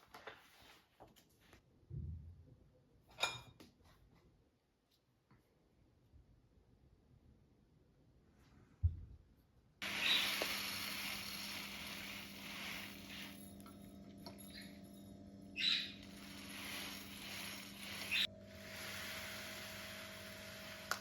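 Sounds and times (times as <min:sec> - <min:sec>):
outdoor background hiss: 0:09.8 - 0:21.0
short bird chirps: 0:15.6 - 0:16.0.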